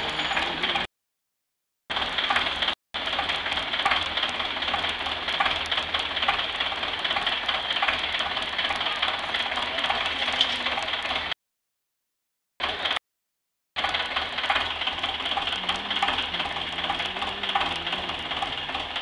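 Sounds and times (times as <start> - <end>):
tractor engine running: 0.0 - 0.9, 1.9 - 11.4, 12.6 - 13.0, 13.8 - 19.0
fast irregular ticking: 1.9 - 10.1, 13.8 - 19.0.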